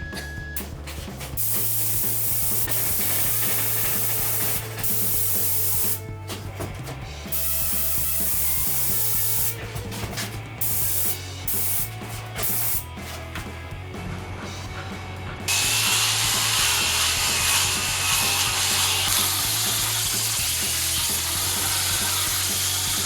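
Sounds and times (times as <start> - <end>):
spray paint can hissing: 1.4 - 6.0, 7.3 - 9.6, 10.6 - 12.9, 15.5 - 23.0.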